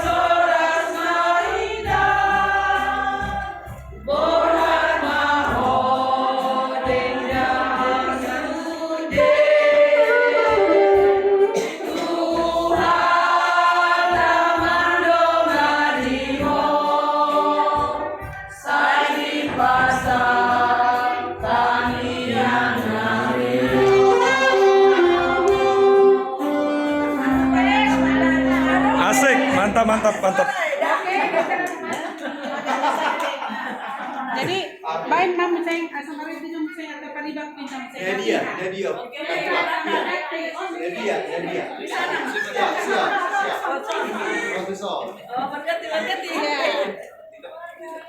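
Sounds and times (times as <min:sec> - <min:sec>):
choir singing: 0:00.0 - 0:31.4.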